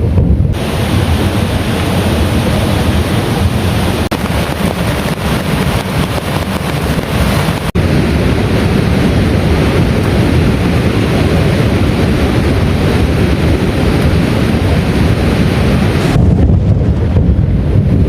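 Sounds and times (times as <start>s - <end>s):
heavy rain pouring: 0.0s - 18.0s
wind rumble on microphone: 0.0s - 18.0s.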